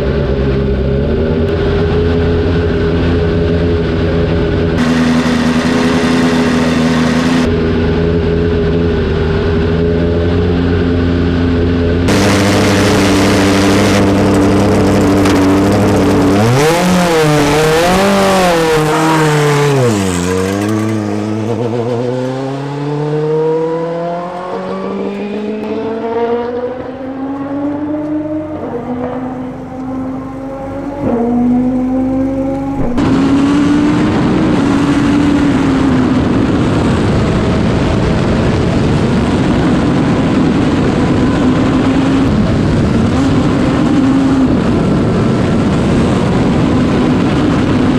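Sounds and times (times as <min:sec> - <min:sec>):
race car engine revving: 0:00.2 - 0:47.9.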